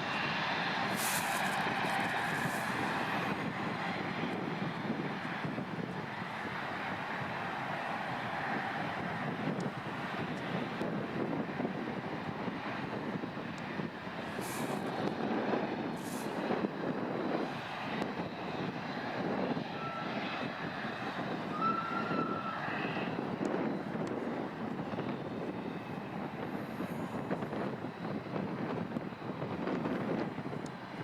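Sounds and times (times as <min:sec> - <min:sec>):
jet engines running: 0:00.0 - 0:31.0
thin whistle: 0:19.8 - 0:20.1, 0:21.5 - 0:23.1.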